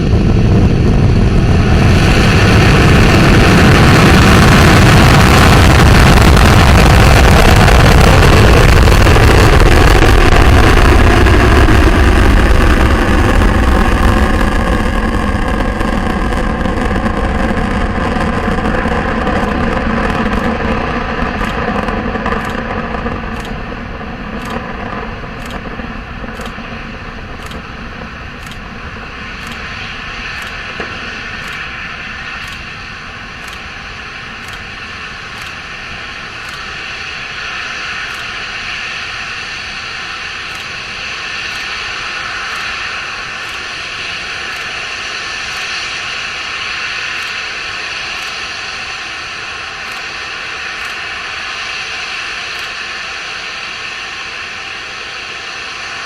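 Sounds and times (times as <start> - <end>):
rocket engines roaring: 0.0 - 56.0.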